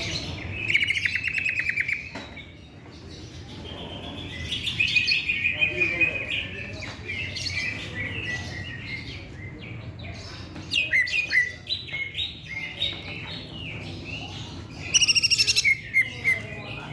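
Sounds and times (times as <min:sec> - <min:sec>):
bird singing whistles and chirps: 0:00.5 - 0:02.2, 0:14.8 - 0:16.5
fast bird trill: 0:14.9 - 0:16.4.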